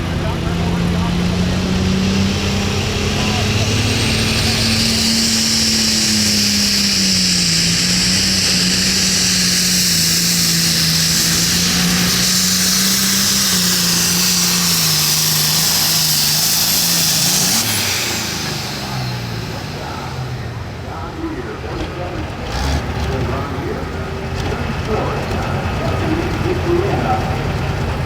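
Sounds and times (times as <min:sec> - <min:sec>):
diesel tractor engine at full power: 0:00.0 - 0:28.0
strong hiss: 0:00.8 - 0:21.5.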